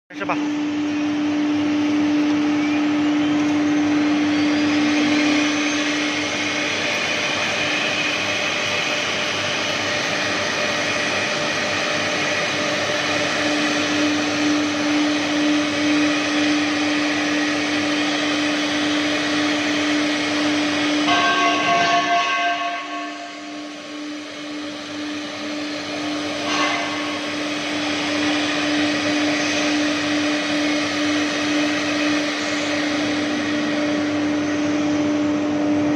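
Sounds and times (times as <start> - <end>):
router spindle whine: 0.4 - 35.9.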